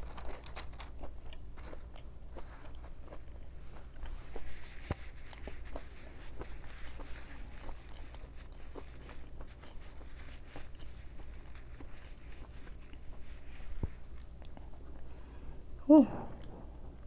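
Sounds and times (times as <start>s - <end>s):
chewing with wet mouth clicks: 14.2s - 15.1s.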